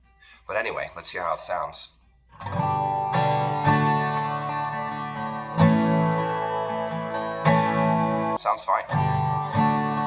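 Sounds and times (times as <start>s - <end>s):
acoustic guitar strummed: 2.3s - 10.0s.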